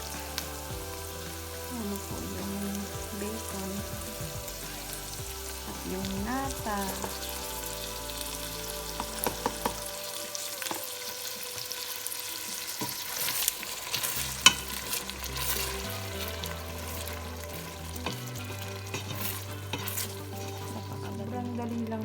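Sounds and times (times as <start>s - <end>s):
bacon and onions sizzling: 0.0s - 22.0s
soft background music: 0.0s - 22.0s
spoon scraping a pan: 6.8s - 21.2s.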